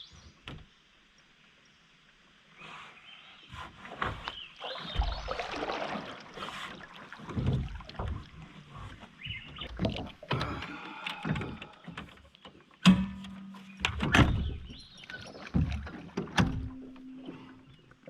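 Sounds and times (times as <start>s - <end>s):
knocks and thumps on boat hull: 12.8s - 14.8s, 15.4s - 17.0s.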